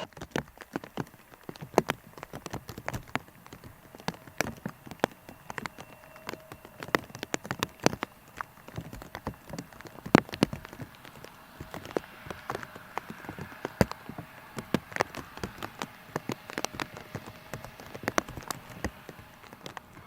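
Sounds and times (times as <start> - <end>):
raindrops tapping on a surface: 0.0 - 20.0.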